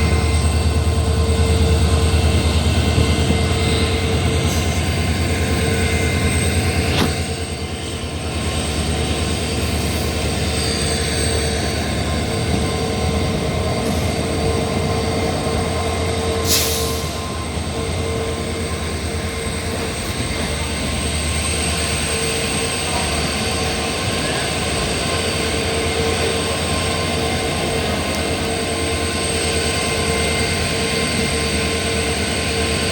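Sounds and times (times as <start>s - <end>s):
train rumble: 0.0s - 32.9s.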